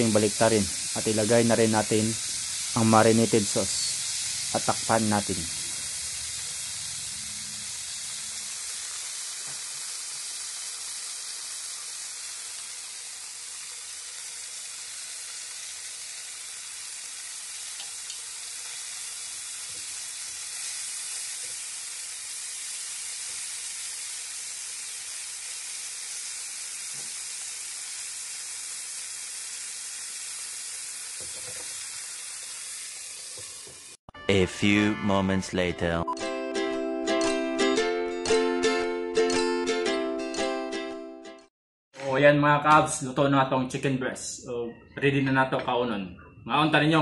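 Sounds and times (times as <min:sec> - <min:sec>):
chicken sizzling in a frying pan: 0:00.0 - 0:34.0.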